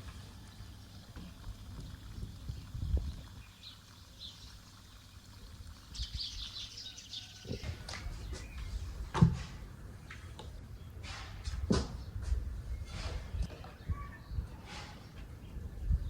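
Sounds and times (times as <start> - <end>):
small birds chirping: 0.0 - 9.0.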